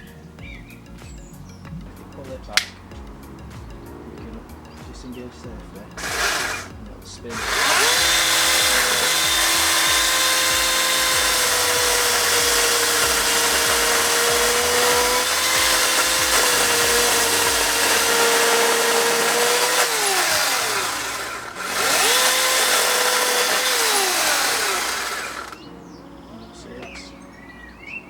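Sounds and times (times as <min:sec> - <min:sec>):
electric chainsaw cutting log: 0:05.9 - 0:25.7.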